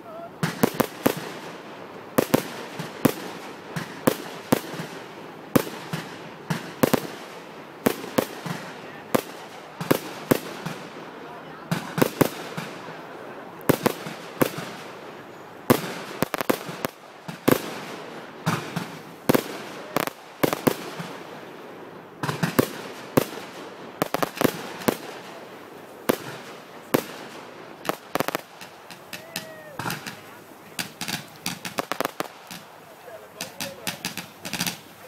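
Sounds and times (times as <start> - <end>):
fireworks shells bursting: 22.2 - 35.0.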